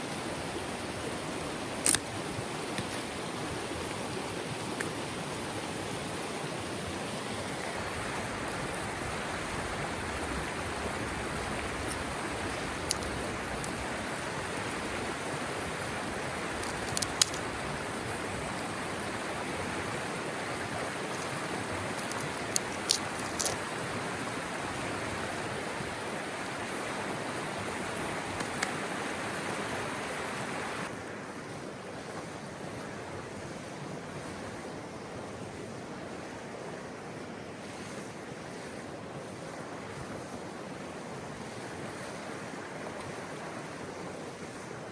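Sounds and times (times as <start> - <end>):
stream rushing water: 0.0 - 44.9
sharp clicks: 12.8 - 13.8.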